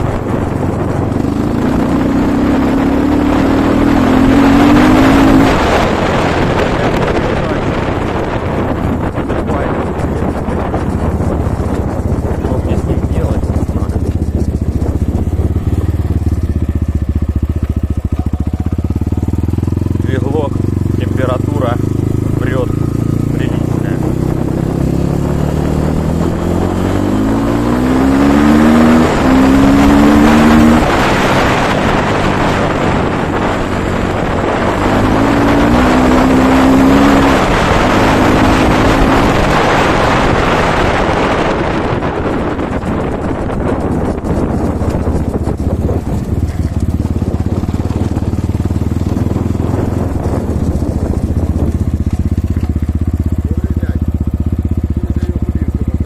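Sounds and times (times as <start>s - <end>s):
motorcycle engine idling: 0.0s - 2.6s, 6.0s - 25.9s, 41.3s - 56.0s
wind noise on microphone: 0.0s - 56.0s.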